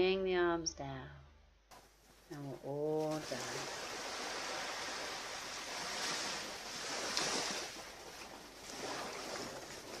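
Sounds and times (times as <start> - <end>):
ocean surf washing onto beach: 3.0 - 10.0.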